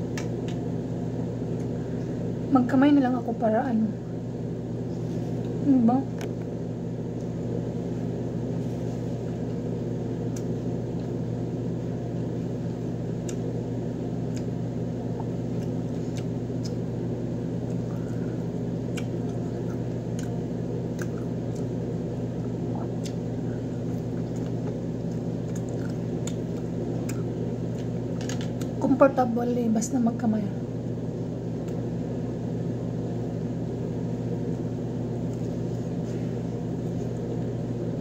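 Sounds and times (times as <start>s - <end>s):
appliance humming: 0.0s - 38.0s
chewing fried chicken: 12.1s - 28.8s, 34.4s - 37.8s.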